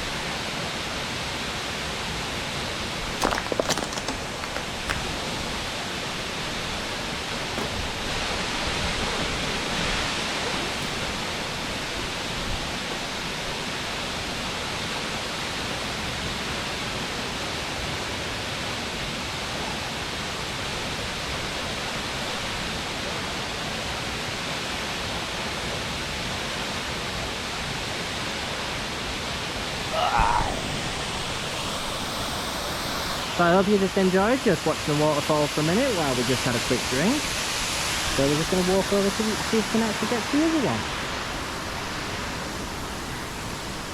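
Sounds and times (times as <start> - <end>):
waterfall rushing: 29.6 - 43.9.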